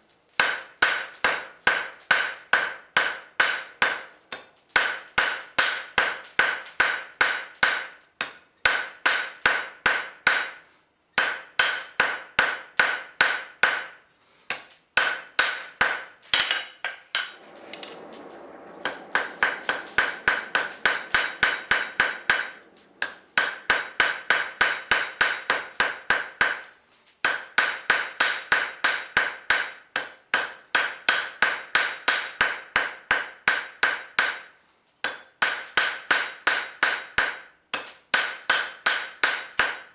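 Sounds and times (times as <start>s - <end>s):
anvil ringing: 0.4s - 10.5s, 11.2s - 26.6s
hammer striking steel on anvil: 0.4s - 10.6s, 11.2s - 39.9s.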